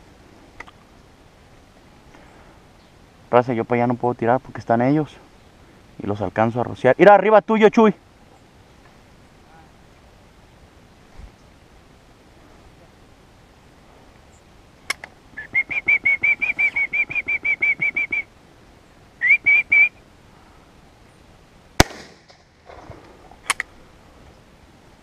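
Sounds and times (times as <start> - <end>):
bird whistling notes: 15.4 - 18.3, 19.2 - 20.0
shotgun bang: 21.8 - 22.4
small crack: 21.8 - 23.7.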